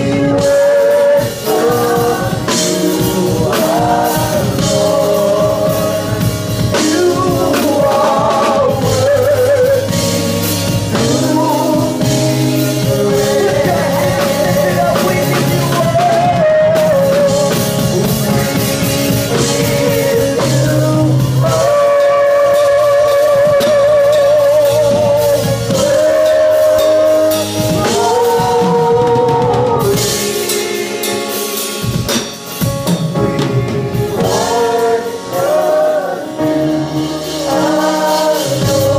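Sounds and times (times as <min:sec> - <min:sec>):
person singing with vibrato: 0:00.0 - 0:32.1, 0:33.2 - 0:38.9
band with drum kit: 0:00.0 - 0:38.9.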